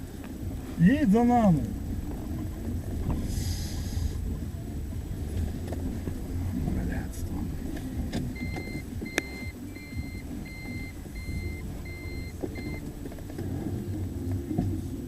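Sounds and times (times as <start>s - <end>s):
car engine running: 0.0s - 15.0s
car warning chime beeping: 7.6s - 14.5s.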